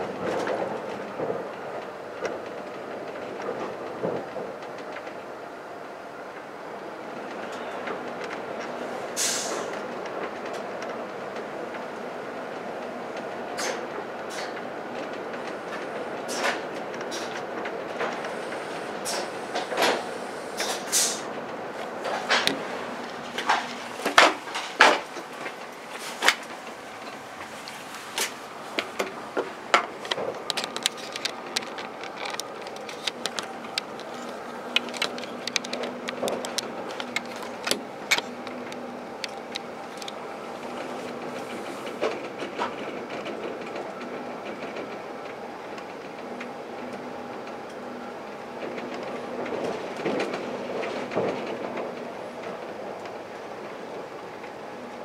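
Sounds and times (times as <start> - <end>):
train running hum: 0.0 - 55.0
wheels clicking and knocking: 12.6 - 47.8, 48.4 - 55.0.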